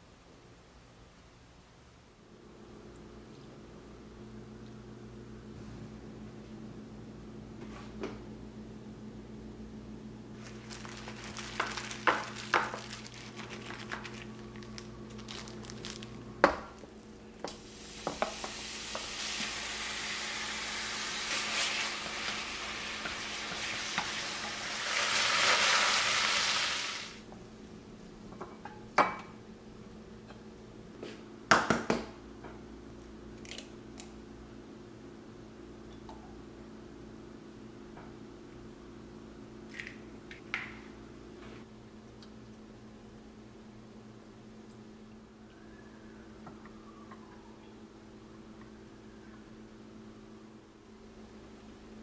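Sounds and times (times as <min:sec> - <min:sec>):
meat sizzling in a pan: 0:17.6 - 0:27.2.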